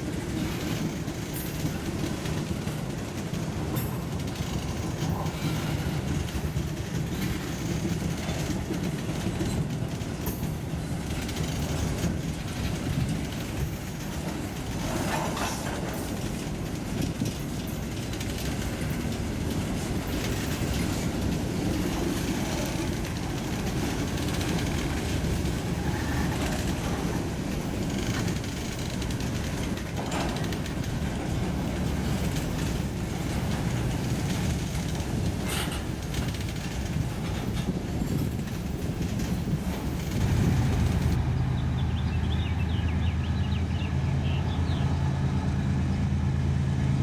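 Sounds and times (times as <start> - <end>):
sharp clicks of rail cars: 0.0 - 43.8
railroad cars rolling past: 0.0 - 47.0.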